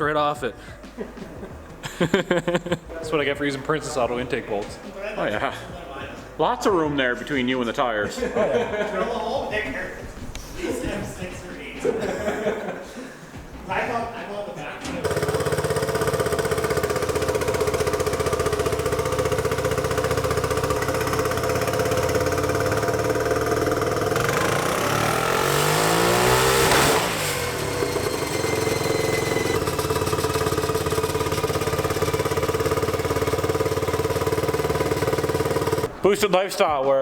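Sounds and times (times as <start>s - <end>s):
single-cylinder engine running: 15.0s - 36.0s.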